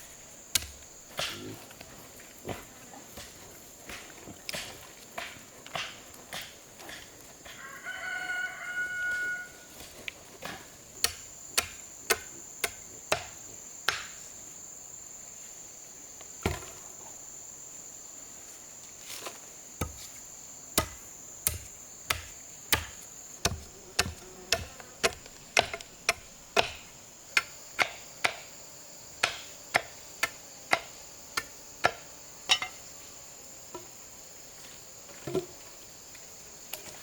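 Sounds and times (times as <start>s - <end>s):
hand tool striking blows: 0.5s - 1.5s, 3.9s - 7.1s, 10.4s - 14.2s, 19.8s - 20.2s, 20.8s - 28.5s, 29.2s - 32.8s
rooster crowing: 7.4s - 9.8s
high insect drone: 7.4s - 9.9s, 10.8s - 37.0s.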